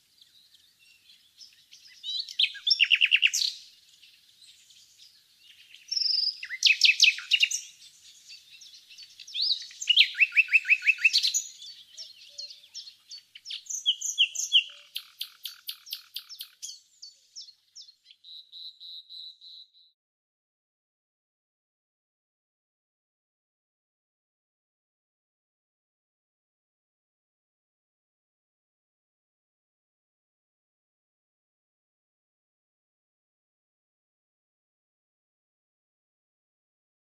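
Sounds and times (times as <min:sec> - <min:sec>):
nightingale singing: 0:00.0 - 0:20.0.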